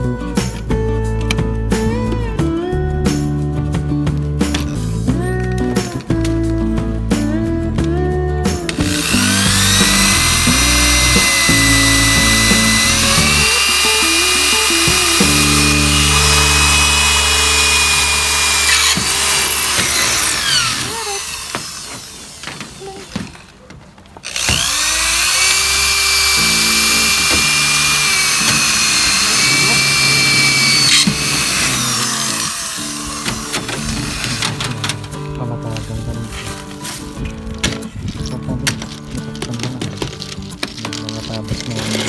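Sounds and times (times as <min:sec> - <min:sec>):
background music: 0:00.0 - 0:21.5, 0:24.3 - 0:42.0
power tool whining on sheet metal: 0:08.6 - 0:23.6, 0:24.2 - 0:35.2.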